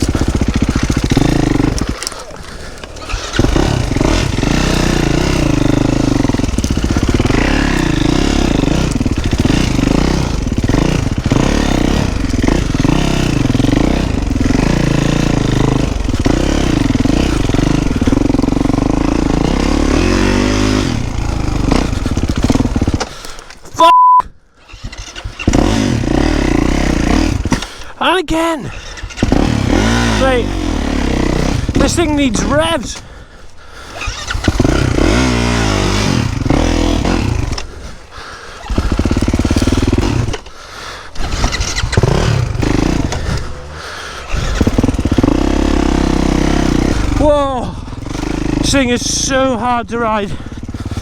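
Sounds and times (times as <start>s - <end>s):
motocross bike engine revving: 0.0s - 23.9s, 24.6s - 51.0s
short electronic beep: 23.8s - 24.2s.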